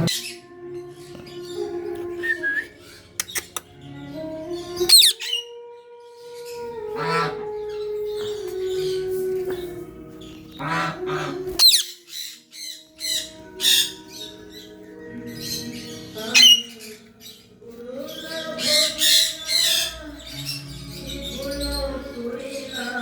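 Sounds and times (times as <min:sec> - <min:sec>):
background music with held tones: 0:00.0 - 0:23.0
birds squawking harshly: 0:04.8 - 0:05.5, 0:06.4 - 0:23.0.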